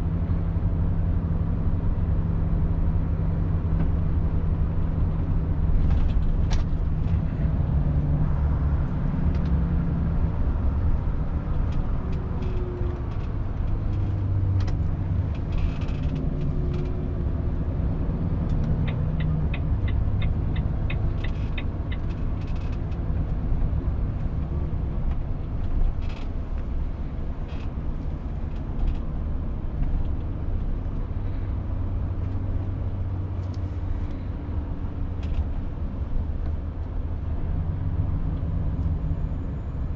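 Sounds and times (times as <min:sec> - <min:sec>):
truck diesel engine drone: 0:00.0 - 0:39.9
small clicks and rattles: 0:11.7 - 0:17.0, 0:18.5 - 0:23.0.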